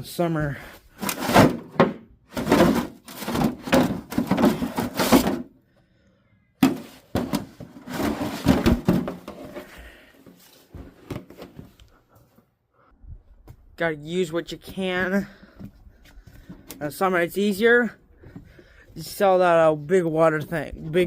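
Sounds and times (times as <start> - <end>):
objects clattering in a garage: 1.0 - 5.6, 6.6 - 11.6.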